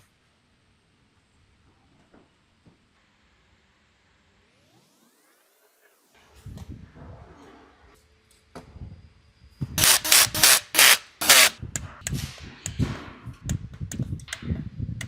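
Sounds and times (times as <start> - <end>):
tool rasping bursts: 9.8 - 11.6.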